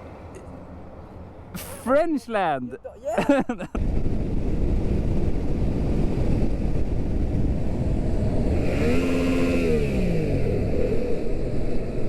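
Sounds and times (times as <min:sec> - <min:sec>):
wind noise: 0:02.8 - 0:12.0
motorcycle engine rumble: 0:03.2 - 0:12.0.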